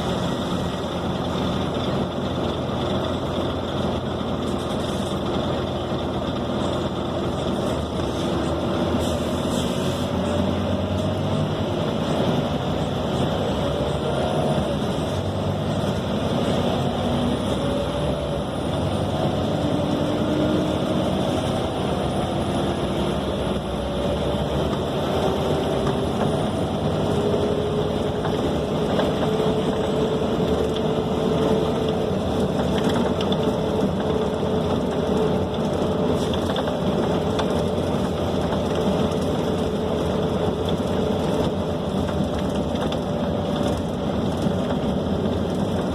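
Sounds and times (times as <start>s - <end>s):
diesel engine and road rumble: 0.0s - 45.9s
drivetrain whine: 0.0s - 45.9s.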